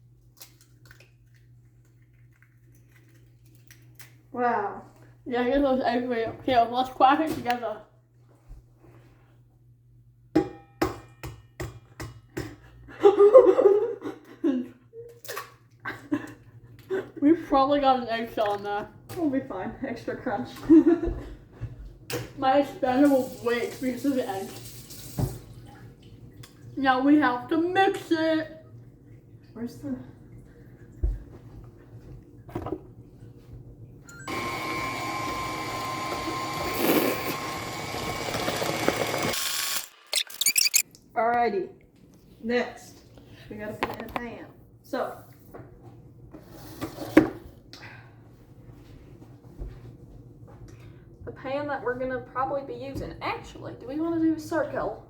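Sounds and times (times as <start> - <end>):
electric mixer whining: 34.1 - 40.1.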